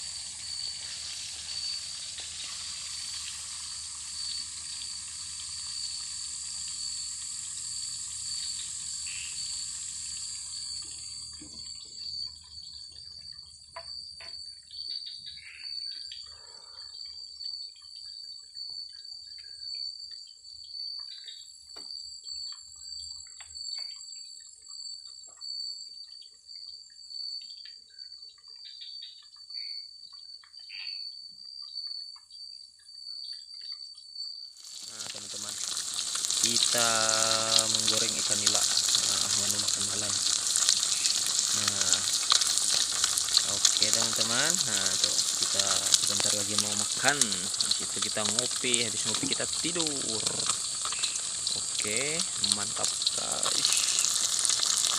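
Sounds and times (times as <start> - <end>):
fish sizzling in oil: 0.0 - 16.3, 34.5 - 54.9
insect trill: 0.0 - 54.9.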